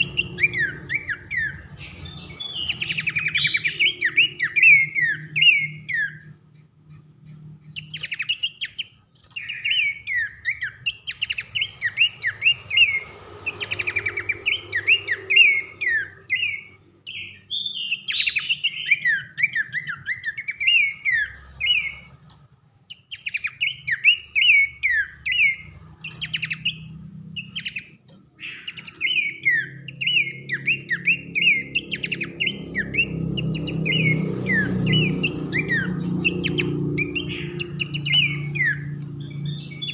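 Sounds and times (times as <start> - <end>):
bird singing whistled notes: 0.0 - 6.5, 7.3 - 22.2, 22.9 - 39.9.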